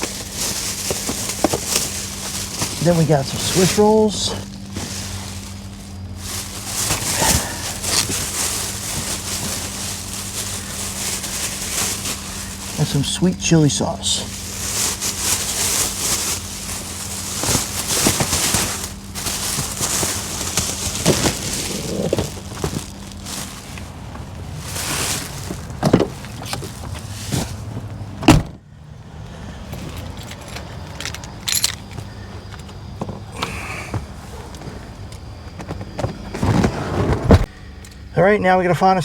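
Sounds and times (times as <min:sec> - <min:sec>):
rustling: 0:00.0 - 0:28.0, 0:33.5 - 0:37.6
vehicle engine idling: 0:00.0 - 0:36.6
door shutting with a thud: 0:28.2 - 0:28.6.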